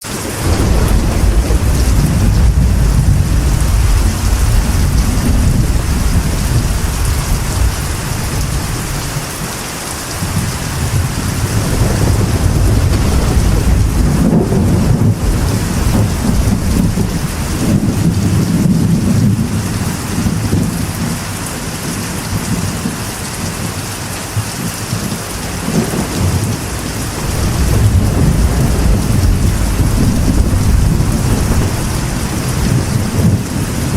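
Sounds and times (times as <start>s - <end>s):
rain drumming on metal roof: 0.0s - 33.9s
thunder rolling: 0.1s - 9.6s, 10.2s - 23.1s, 24.3s - 33.9s.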